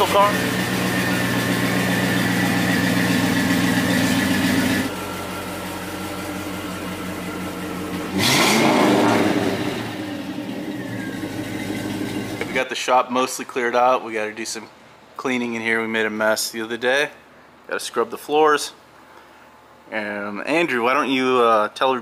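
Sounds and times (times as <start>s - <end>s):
car engine idling and revving: 0.0s - 12.6s.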